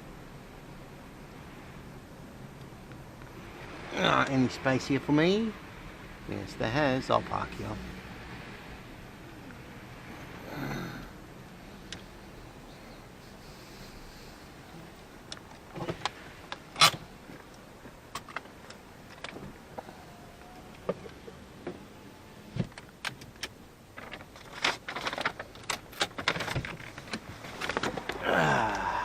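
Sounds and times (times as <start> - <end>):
clicks and rattles: 15.3 - 19.5, 22.7 - 28.2
clicks and knocks inside car: 15.3 - 20.0, 20.7 - 21.9, 22.5 - 28.2.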